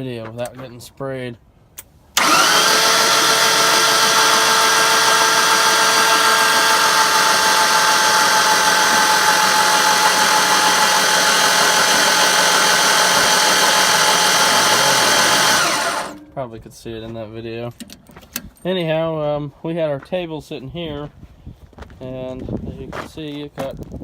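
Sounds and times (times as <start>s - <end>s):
starter motor cranking engine: 2.2s - 16.2s.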